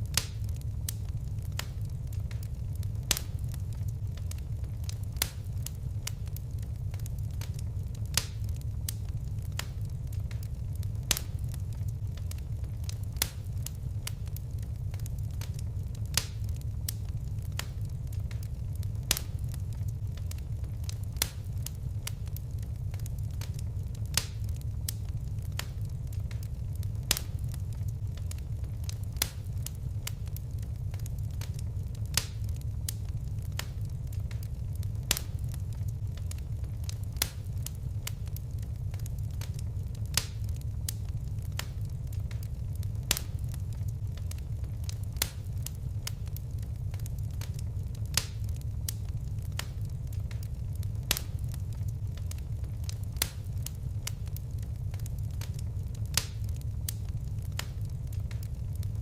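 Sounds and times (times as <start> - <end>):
fire pops: 0.0 - 59.0
low rumble of flames: 0.0 - 59.0.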